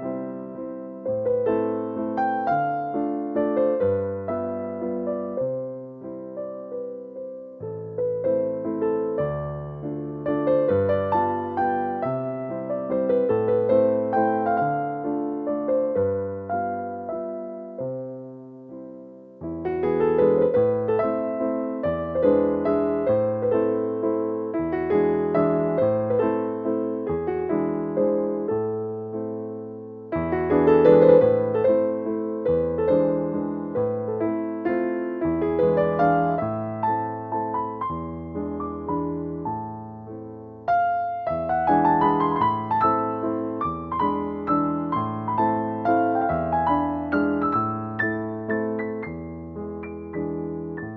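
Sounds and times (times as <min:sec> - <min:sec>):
gentle piano waltz: 0:00.0 - 0:50.9.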